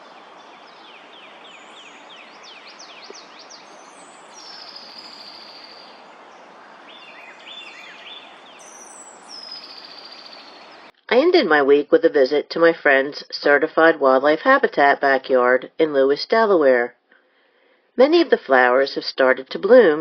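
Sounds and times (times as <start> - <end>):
songbirds singing and calling: 0.0 - 10.9
steady background hiss: 0.0 - 10.9.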